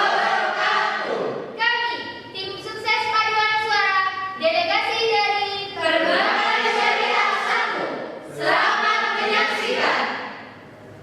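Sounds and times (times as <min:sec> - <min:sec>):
choir singing held chords: 0:00.0 - 0:01.6, 0:05.8 - 0:10.6.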